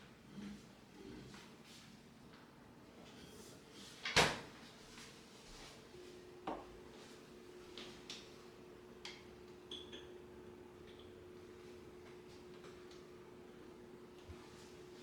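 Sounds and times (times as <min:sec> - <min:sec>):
faint steady hum: 0:04.7 - 0:15.0.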